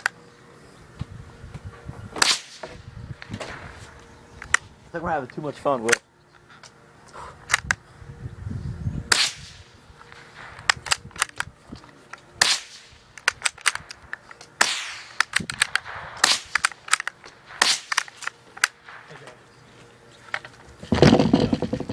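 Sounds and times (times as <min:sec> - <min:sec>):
rifle shots cracking: 0:02.2 - 0:02.6, 0:09.1 - 0:09.6, 0:10.2 - 0:11.4, 0:12.4 - 0:13.9, 0:14.6 - 0:19.2.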